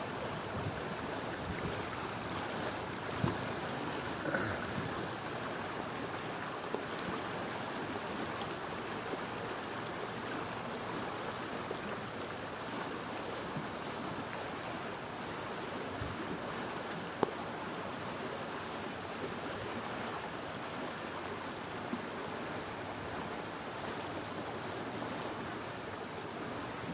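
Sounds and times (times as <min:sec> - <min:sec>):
water rushing: 0:00.0 - 0:26.9.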